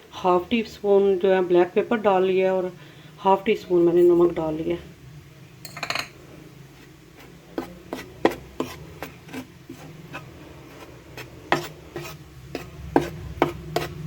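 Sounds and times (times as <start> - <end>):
spoon scraping and tapping a bowl: 5.6 - 6.2, 7.6 - 9.5, 11.2 - 14.0.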